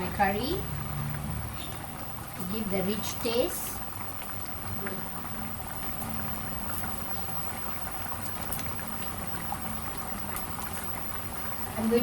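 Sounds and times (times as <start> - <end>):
food bubbling on stove: 0.0 - 12.0.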